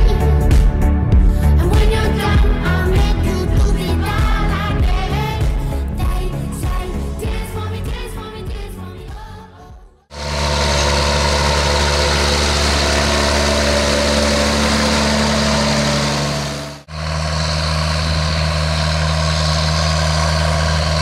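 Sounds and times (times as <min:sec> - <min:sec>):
tractor diesel engine droning: 0:10.1 - 0:21.0.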